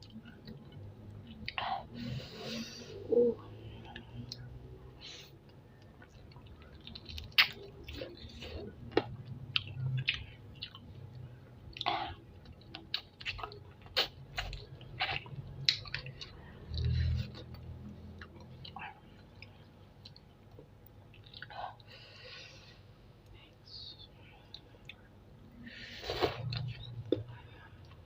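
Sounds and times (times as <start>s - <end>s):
wet chewing and sucking: 5.8s - 10.9s, 11.7s - 21.6s.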